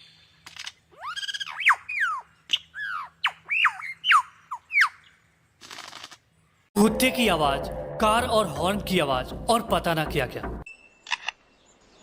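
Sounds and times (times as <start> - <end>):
lyrebird whistled calls: 1.0 - 5.0.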